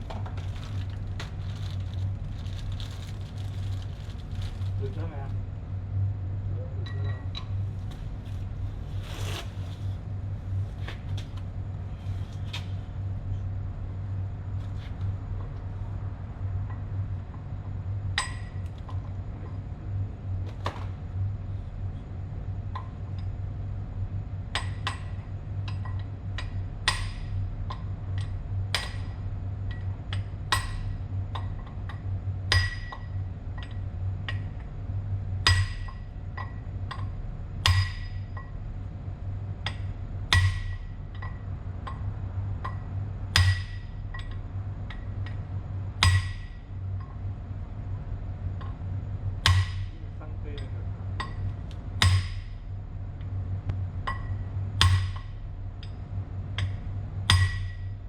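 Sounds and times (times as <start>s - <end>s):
steady low hum: 0.0s - 58.0s
tool tapping on metal: 35.5s - 38.5s, 46.0s - 47.1s, 49.4s - 50.0s, 50.6s - 52.5s, 54.1s - 56.0s, 56.6s - 57.9s.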